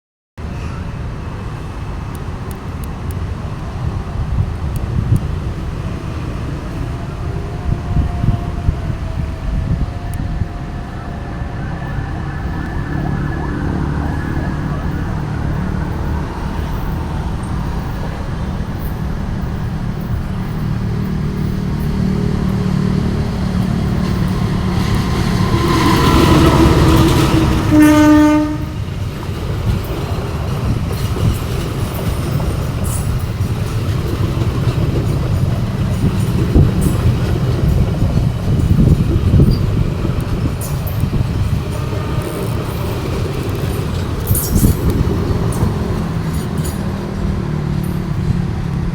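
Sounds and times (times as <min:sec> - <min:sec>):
train rumbling on rails: 0:00.4 - 0:48.9
train horn blast: 0:21.8 - 0:28.9.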